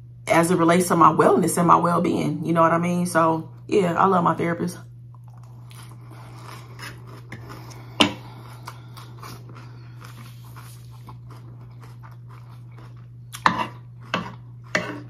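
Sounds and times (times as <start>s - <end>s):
steady low hum: 0.0s - 15.0s
chewing crisp lettuce: 5.1s - 15.0s.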